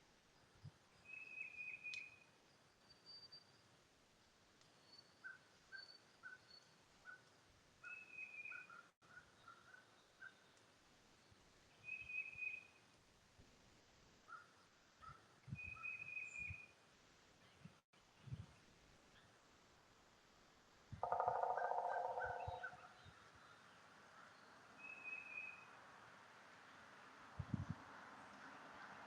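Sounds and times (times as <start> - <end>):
birds chirping: 21.0 - 25.6.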